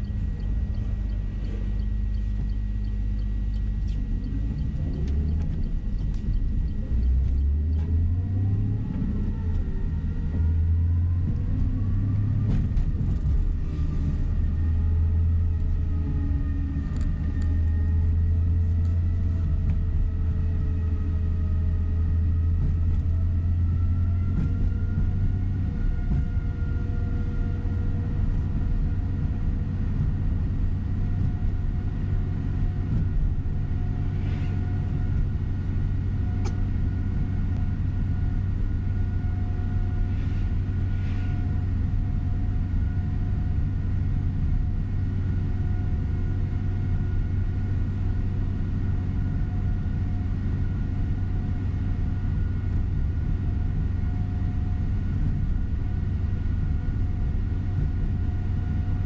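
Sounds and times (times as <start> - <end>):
light ticks and rattles: 0.0 - 8.0
faint steady whine: 0.0 - 11.4
coach engine and road rumble: 0.0 - 59.0.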